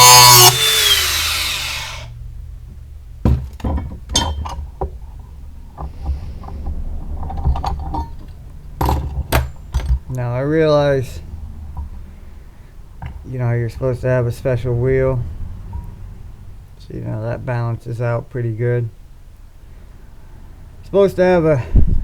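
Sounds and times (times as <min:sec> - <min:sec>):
angle grinder grinding steel: 0:00.0 - 0:02.1.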